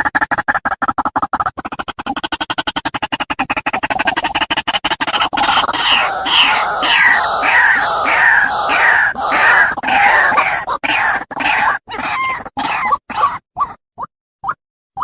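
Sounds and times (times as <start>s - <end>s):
bird clicks and rising notes: 5.0s - 12.5s
harsh bird calls: 5.1s - 13.4s.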